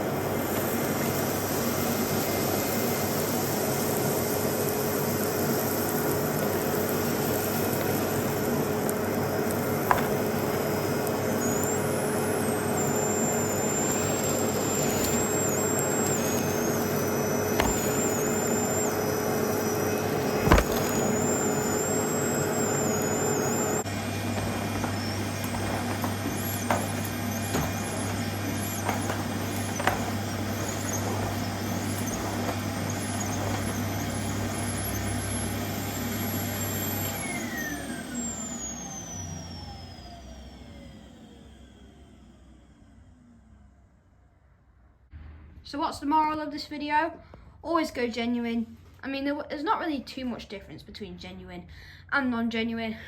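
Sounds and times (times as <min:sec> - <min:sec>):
vacuum cleaner running: 0:00.0 - 0:44.0
vacuum tool knocks: 0:09.8 - 0:10.3, 0:17.6 - 0:18.3, 0:20.3 - 0:21.2, 0:24.3 - 0:34.0
high suction whistle: 0:11.3 - 0:23.9.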